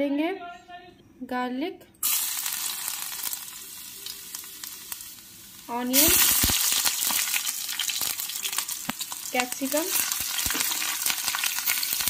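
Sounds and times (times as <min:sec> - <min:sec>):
garlic sizzling in hot oil: 0:02.0 - 0:12.0
onion chunks dropping into pan: 0:05.9 - 0:12.0.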